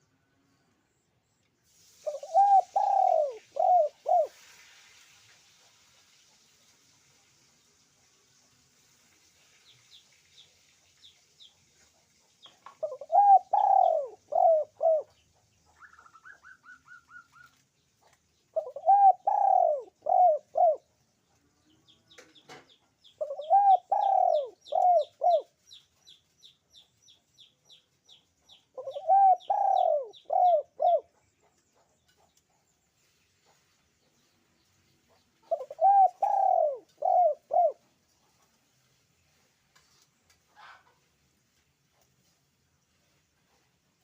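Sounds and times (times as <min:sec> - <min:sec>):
dove cooing: 0:02.1 - 0:04.4, 0:12.8 - 0:15.1, 0:18.5 - 0:20.8, 0:23.2 - 0:25.5, 0:28.7 - 0:31.2, 0:35.4 - 0:37.8
small bird chirping: 0:09.3 - 0:44.0.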